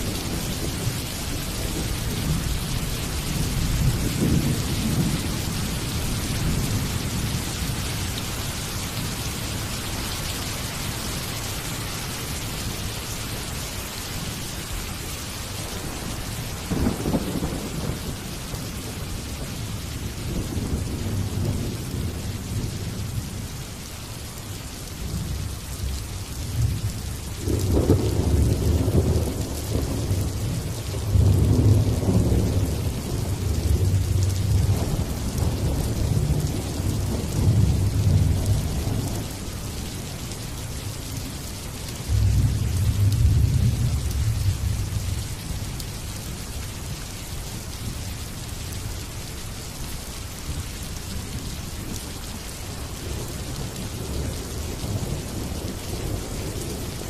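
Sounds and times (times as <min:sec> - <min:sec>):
thunder rumbling: 0:00.0 - 0:07.8, 0:16.2 - 0:23.2, 0:26.5 - 0:39.5, 0:42.0 - 0:45.7
rain hissing: 0:00.0 - 0:57.0.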